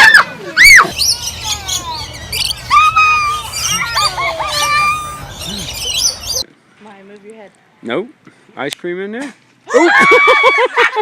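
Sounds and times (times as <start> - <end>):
bird whistling chirps: 0.6 - 6.5.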